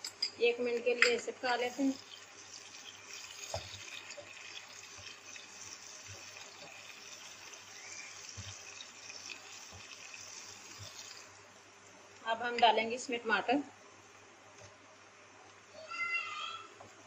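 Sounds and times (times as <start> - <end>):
onions sizzling in hot oil: 1.5 - 11.5.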